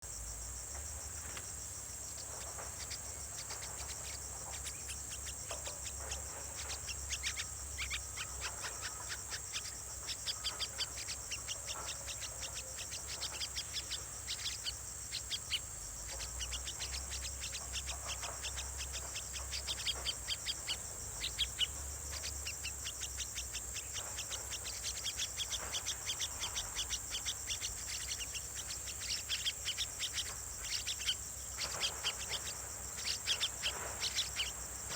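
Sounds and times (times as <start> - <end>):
nestling bird begging calls: 6.6 - 34.6.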